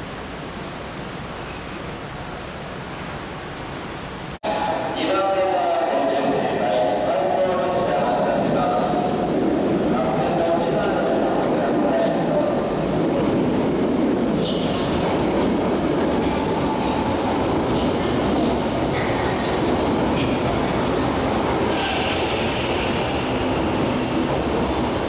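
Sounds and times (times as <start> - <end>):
electric train rumbling: 0.0 - 25.0
faint high brake squeals: 1.1 - 1.6, 21.7 - 23.3
loud air hiss: 21.7 - 24.1.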